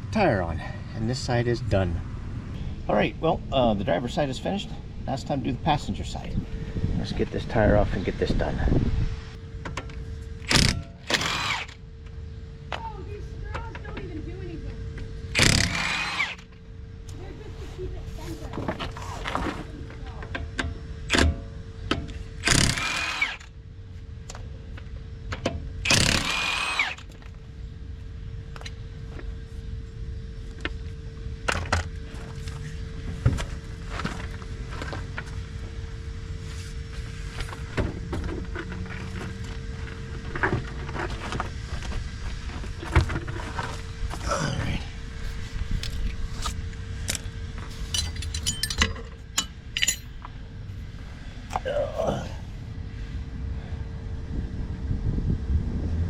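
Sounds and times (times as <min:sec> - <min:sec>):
faint steady hum: 0:00.0 - 0:56.0
impact wrench whirring: 0:10.5 - 0:11.8, 0:15.3 - 0:16.5, 0:22.4 - 0:23.5, 0:25.9 - 0:27.1
metallic clinks of hand tools: 0:47.9 - 0:50.2.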